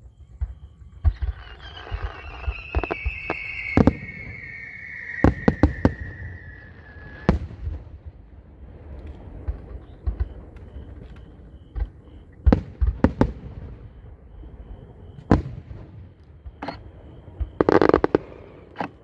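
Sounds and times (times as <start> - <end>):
firework bangs: 1.0 - 8.0, 17.5 - 18.6
firework whistle falling in pitch: 1.1 - 7.5.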